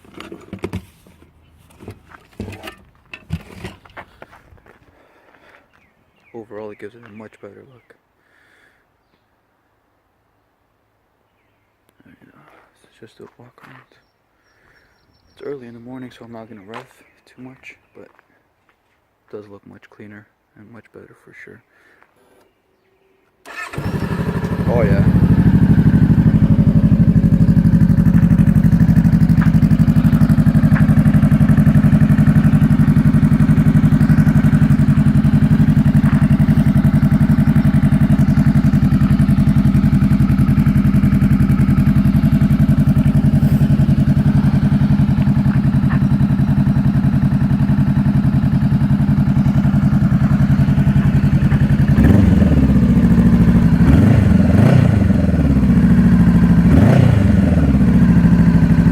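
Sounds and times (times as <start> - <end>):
motorcycle engine idling: 23.5 - 58.9.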